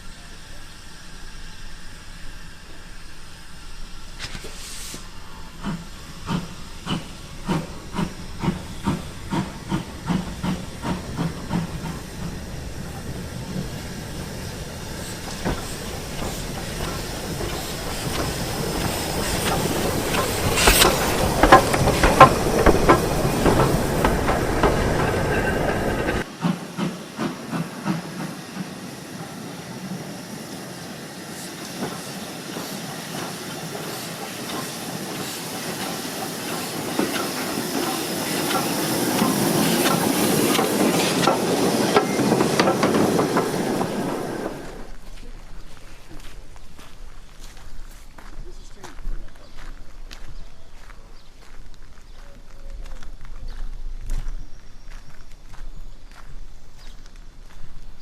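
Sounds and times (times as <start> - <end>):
hiss of steam: 0.0 - 46.9
steam locomotive exhaust beats: 0.0 - 52.0
wheels clicking over rails: 15.2 - 28.0, 34.4 - 44.9.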